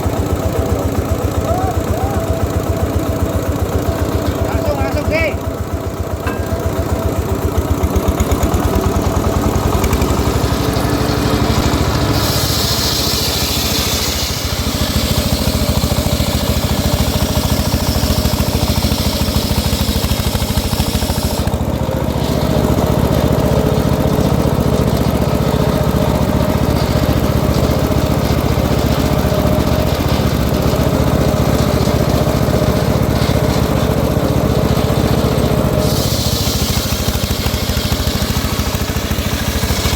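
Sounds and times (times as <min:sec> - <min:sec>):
saw engine chugging: 0:00.0 - 0:39.9
high hissing: 0:12.0 - 0:15.7, 0:35.8 - 0:39.9.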